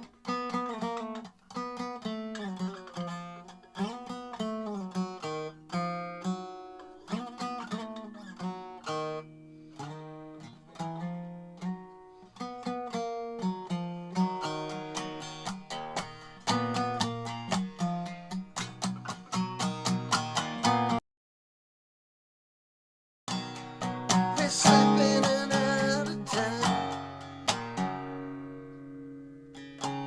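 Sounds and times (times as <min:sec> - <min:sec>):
resonator bass strummed: 0:23.3 - 0:30.0.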